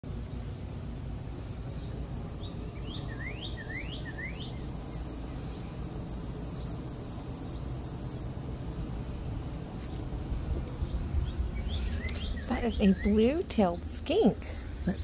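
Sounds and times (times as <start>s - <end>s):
faint high whine: 0.0s - 15.0s
low background rumble: 0.0s - 15.0s
high bird chirps: 1.7s - 8.0s, 10.7s - 13.9s
small bird calling: 1.7s - 8.1s, 9.8s - 15.0s.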